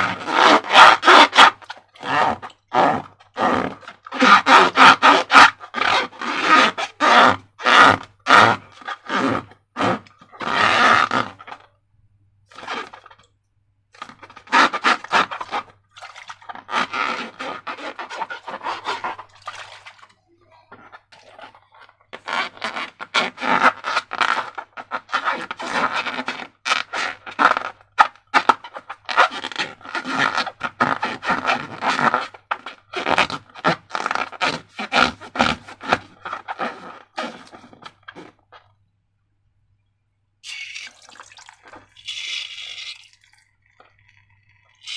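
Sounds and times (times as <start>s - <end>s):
sticky crackling and scraping of slime: 14.0s - 38.8s.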